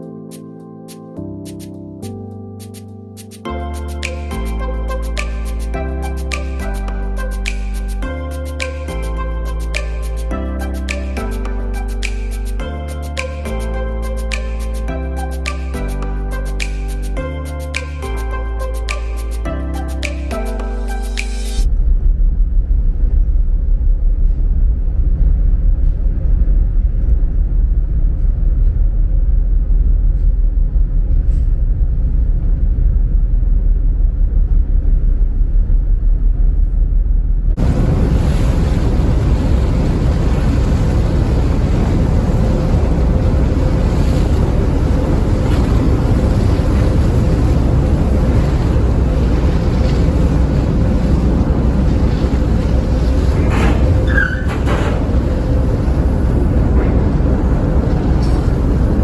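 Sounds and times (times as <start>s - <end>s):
rush of wind and water: 37.6s - 59.0s
ship engines rumbling: 37.6s - 59.0s.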